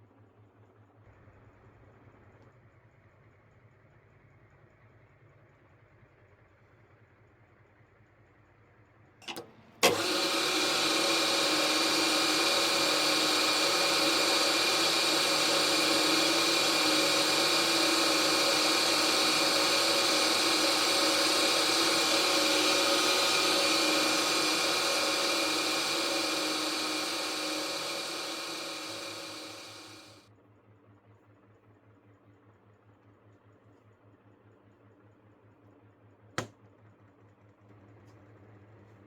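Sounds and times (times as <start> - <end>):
motor switch click: 9.2 - 30.1
electric motor hum and whine: 9.2 - 30.2.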